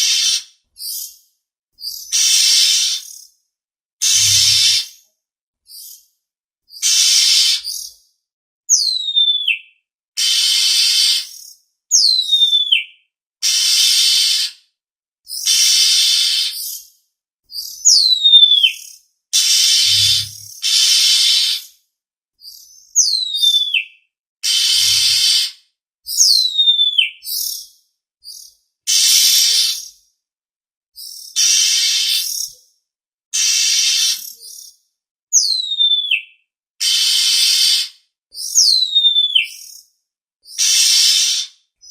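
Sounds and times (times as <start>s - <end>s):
bird descending whistle: 4.0s - 4.8s, 19.7s - 20.5s
bird harsh rasping call: 4.0s - 4.9s, 19.6s - 21.2s.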